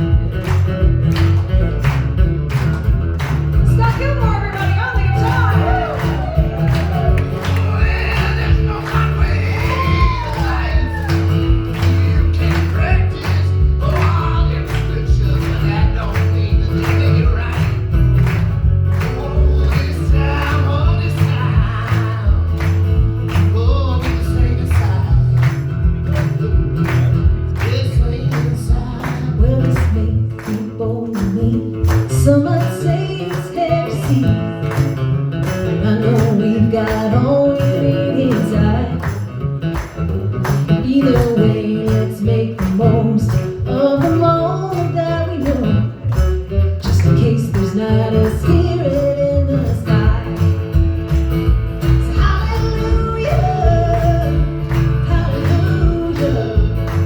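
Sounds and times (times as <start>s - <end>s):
drum beat: 0.0s - 29.7s, 50.0s - 57.0s
bass: 0.0s - 57.0s
live band playing: 0.0s - 57.0s
person singing: 5.1s - 11.2s, 19.1s - 22.5s, 52.0s - 57.0s.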